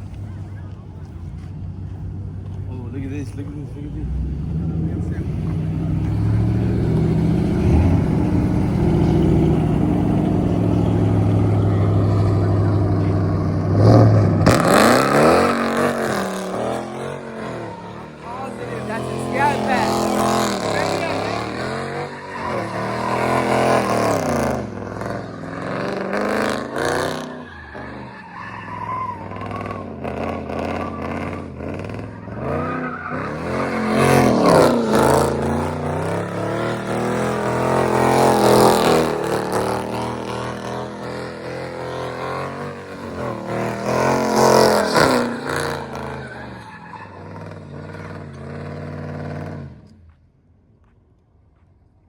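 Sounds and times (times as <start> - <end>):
car engine revving hard: 3.2 - 49.9
tyre squeal: 5.4 - 48.4.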